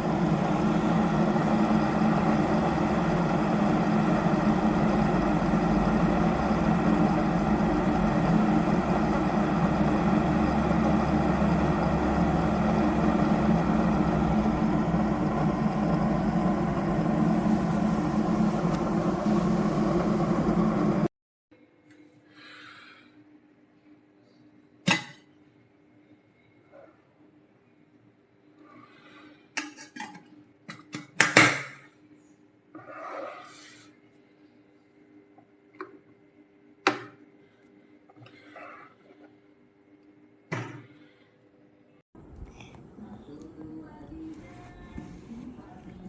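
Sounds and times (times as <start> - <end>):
electric kettle heating water: 0.0 - 21.1, 43.0 - 46.0.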